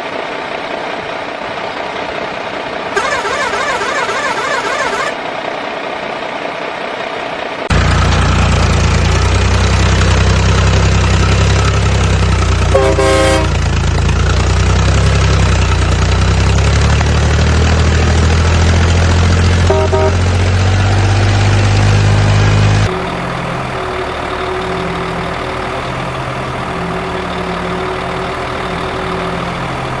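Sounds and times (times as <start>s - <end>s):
toy horn toots: 3.0s - 5.2s, 12.7s - 13.6s, 19.6s - 20.2s
toy truck engine idle drone: 3.0s - 5.3s, 7.7s - 20.6s.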